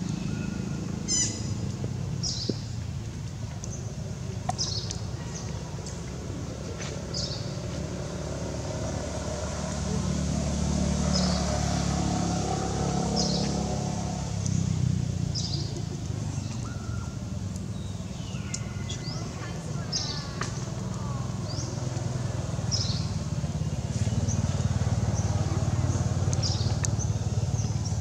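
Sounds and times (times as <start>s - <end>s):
bird chirping: 0.2s - 1.6s
whistled bird calls: 0.4s - 1.5s.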